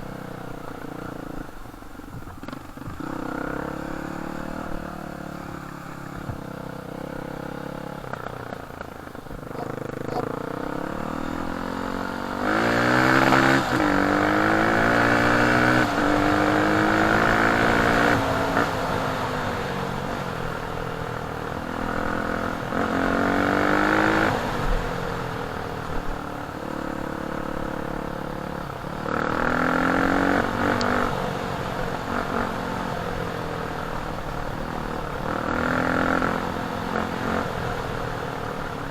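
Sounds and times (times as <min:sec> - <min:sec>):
dirt bike engine revving: 0:02.4 - 0:20.1, 0:29.0 - 0:33.2, 0:33.9 - 0:38.9.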